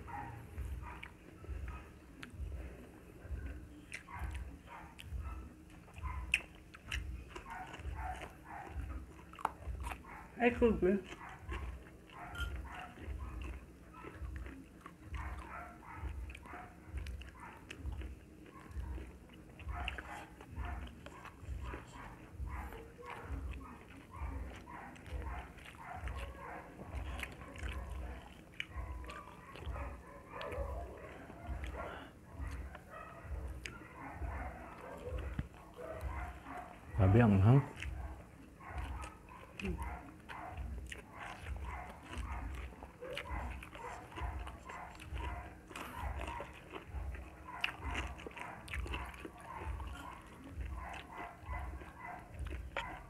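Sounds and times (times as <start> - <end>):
close chewing: 0.0 - 53.0
wet mouth clicks and smacks: 3.8 - 8.3.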